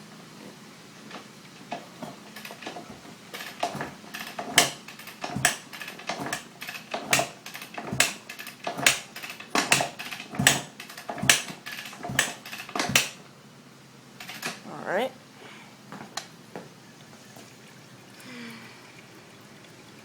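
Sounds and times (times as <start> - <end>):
motorcycle kick-start clanking: 1.1 - 13.3, 14.2 - 14.6.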